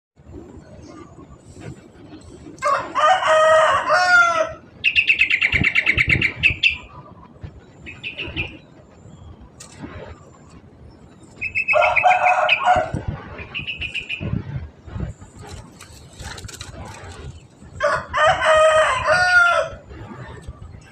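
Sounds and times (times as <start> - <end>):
bird rapid high chirps: 4.8 - 7.0, 7.9 - 8.6, 11.3 - 12.6, 13.4 - 14.4.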